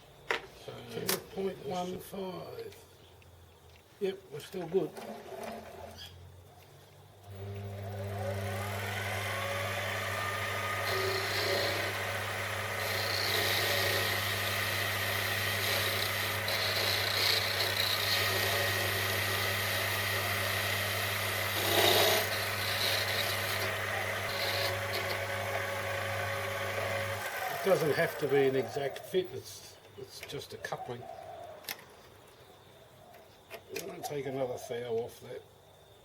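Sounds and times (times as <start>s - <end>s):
lathe motor running: 7.3s - 28.6s
lathe tool scraping metal: 7.3s - 28.8s.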